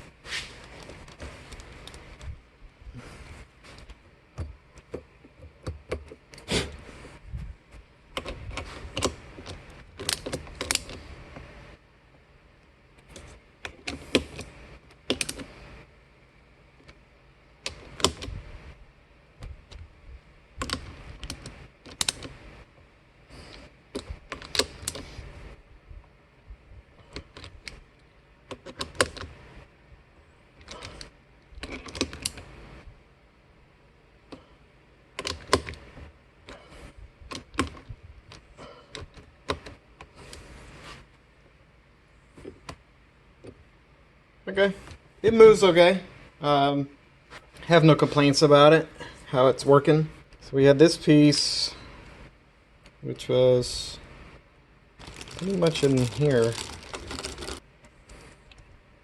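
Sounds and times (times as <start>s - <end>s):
plastic parts clicking and tapping: 35.2s - 35.8s.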